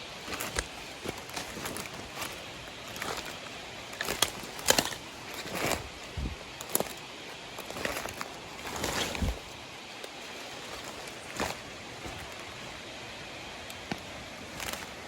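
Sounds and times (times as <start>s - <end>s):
footsteps crunching through leaves: 0.0s - 15.0s.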